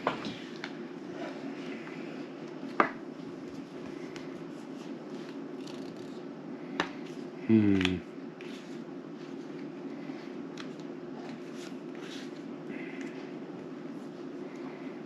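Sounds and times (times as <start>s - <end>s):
person humming hmm: 7.4s - 8.0s.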